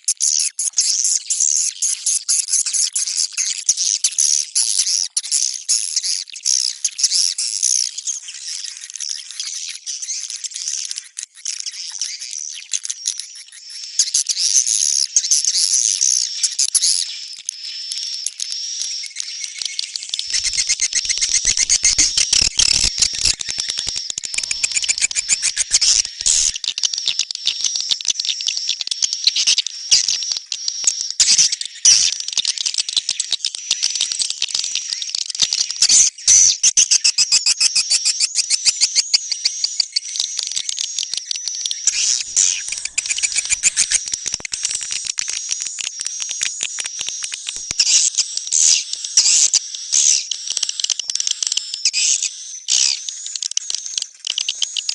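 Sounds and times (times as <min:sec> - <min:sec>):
swiftlet chirps and clicks: 0:20.2 - 0:26.6, 0:41.9 - 0:48.0.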